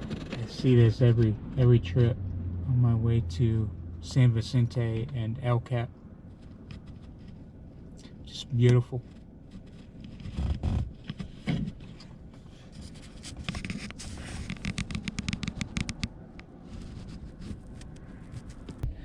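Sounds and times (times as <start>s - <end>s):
scraping and rubbing handling noise: 6.2s - 8.0s, 8.6s - 18.8s
scratchy clicks: 12.8s - 18.8s.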